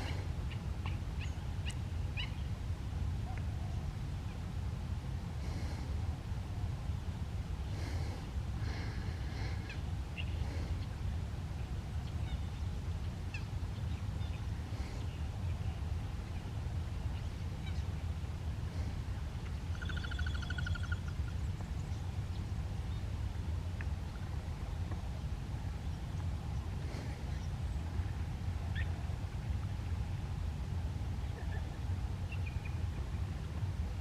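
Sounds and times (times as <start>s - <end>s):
birds chirping and calling: 19.7s - 21.9s.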